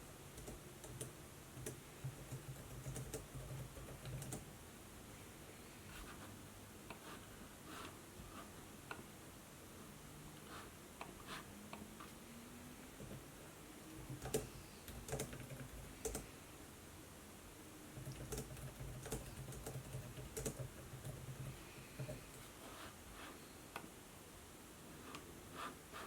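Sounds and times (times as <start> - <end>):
typing on laptop keyboard: 0.4 - 4.4, 14.0 - 16.3, 18.0 - 22.2.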